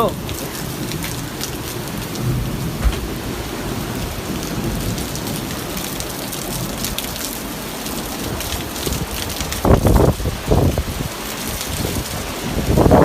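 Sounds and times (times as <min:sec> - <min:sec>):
heavy rain hissing: 0:00.0 - 0:13.0
low thunder rumbling: 0:00.0 - 0:13.0.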